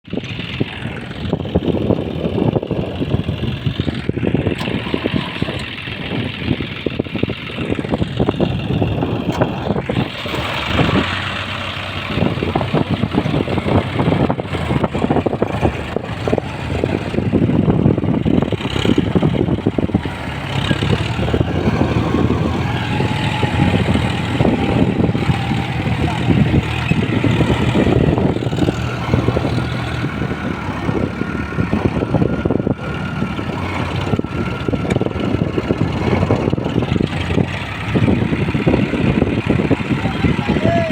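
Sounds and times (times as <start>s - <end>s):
tractor diesel engine running hard: 0.0s - 40.9s.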